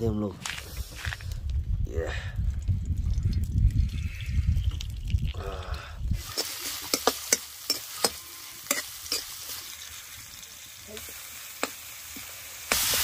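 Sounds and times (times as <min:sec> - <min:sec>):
potatoes sizzling in oil: 0:06.2 - 0:13.0.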